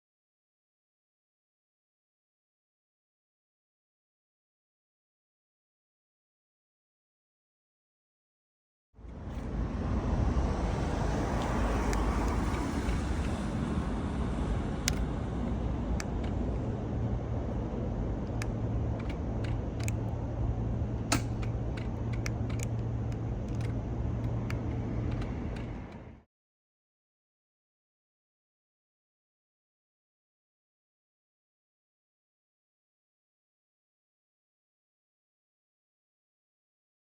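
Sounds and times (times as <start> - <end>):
low steady drone: 9.0 - 26.2
road noise: 9.0 - 26.2
rushing wind: 9.0 - 26.2
motorcycle engine rumble: 9.2 - 26.2
sharp clicks: 14.8 - 15.1, 18.3 - 20.2, 21.0 - 26.0.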